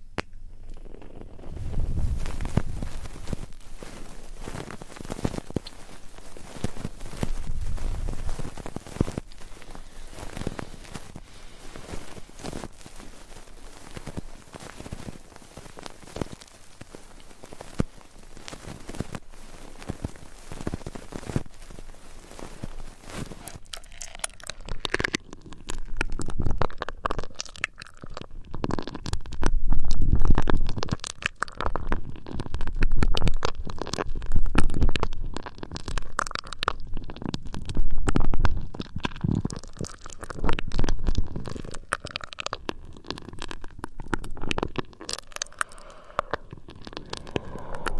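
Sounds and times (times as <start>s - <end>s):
rubbing on microphone: 0.8s - 23.7s, 44.3s - 47.9s.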